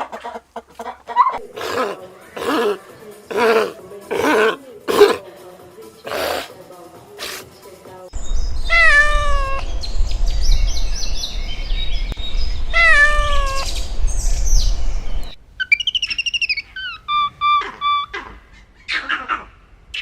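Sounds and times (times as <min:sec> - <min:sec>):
birds chirping: 0:01.2 - 0:05.2, 0:07.2 - 0:19.2
low rumble: 0:08.2 - 0:15.4
cat meowing: 0:08.7 - 0:09.7, 0:12.8 - 0:13.7.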